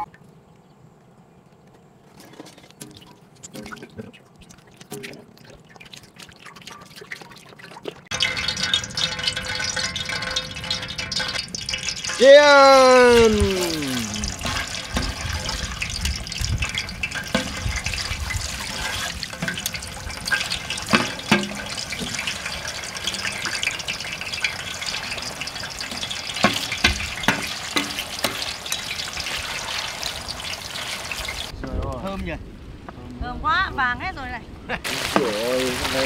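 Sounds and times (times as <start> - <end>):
meat sizzling in oil: 8.1 - 31.5, 34.8 - 36.0.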